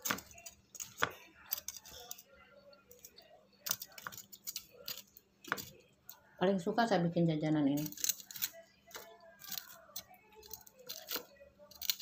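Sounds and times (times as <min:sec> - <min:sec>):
crunchy chewing: 0:07.8 - 0:12.0.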